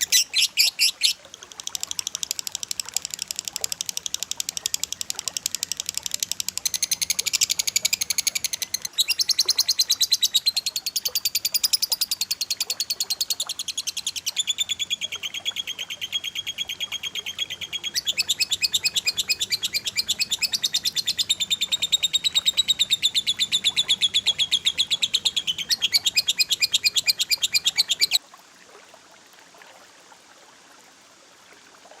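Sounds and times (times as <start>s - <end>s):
bird trilling calls: 0.0s - 1.2s, 4.5s - 28.2s.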